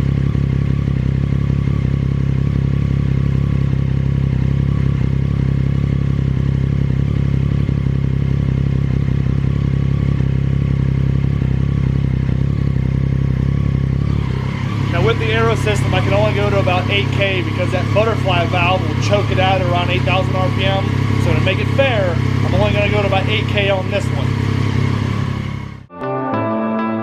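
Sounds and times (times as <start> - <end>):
motorcycle engine idling: 0.0 - 25.9.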